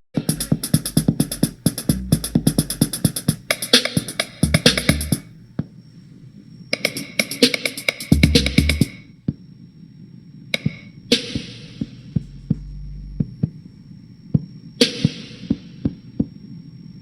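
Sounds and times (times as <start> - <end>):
bass-heavy electronic music: 0.2 - 3.4, 4.4 - 5.2, 8.1 - 8.9, 12.1 - 13.3.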